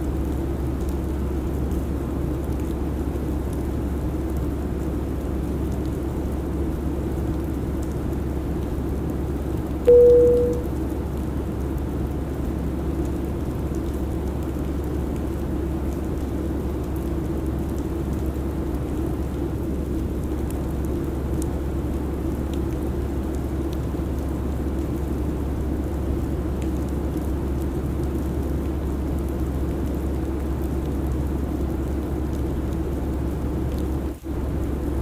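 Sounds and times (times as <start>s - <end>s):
airliner cabin drone: 9.9s - 10.7s.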